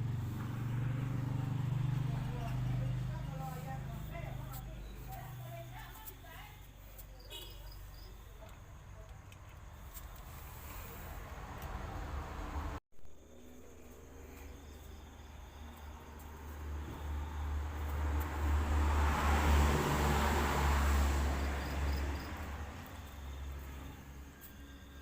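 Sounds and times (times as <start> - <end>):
vehicle passing by: 0.0 - 8.2, 9.6 - 12.8, 13.8 - 25.0
insects chirping faintly: 12.5 - 25.0.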